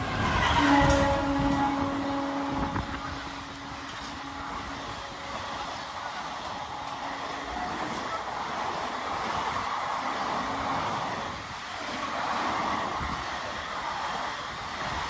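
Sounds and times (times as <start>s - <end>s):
train horn: 0.0s - 8.2s
train rumbling on track: 0.0s - 15.0s.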